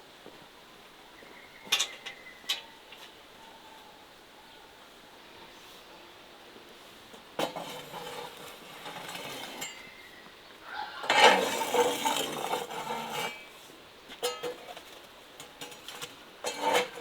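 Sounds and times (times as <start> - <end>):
dishes and cutlery clattering: 14.2 - 14.8.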